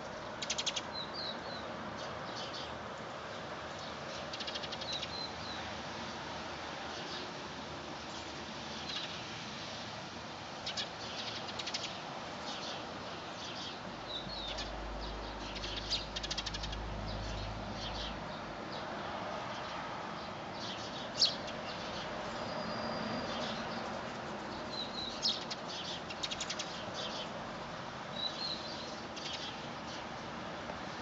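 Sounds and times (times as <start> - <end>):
birds chirping: 0.0 - 5.7, 10.6 - 18.8, 24.5 - 27.4, 28.1 - 30.2.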